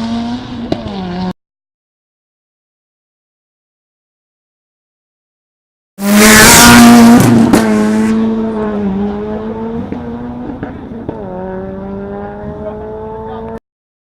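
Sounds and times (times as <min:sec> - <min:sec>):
racing engine accelerating: 0:06.0 - 0:13.6.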